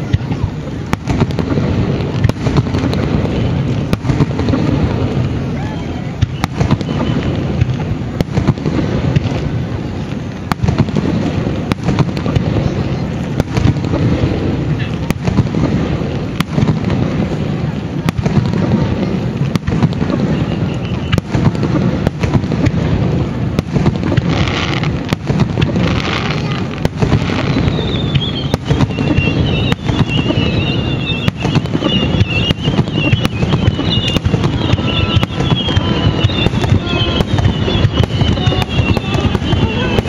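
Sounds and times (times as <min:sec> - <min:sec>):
firework shells bursting: 0:18.0 - 0:40.0
high whistles sliding down: 0:27.4 - 0:40.0.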